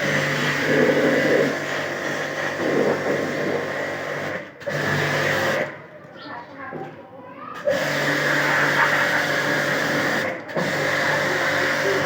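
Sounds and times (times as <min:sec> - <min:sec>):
water jet hissing: 0:00.0 - 0:05.7
pressure washer running: 0:00.0 - 0:05.9, 0:07.6 - 0:12.0.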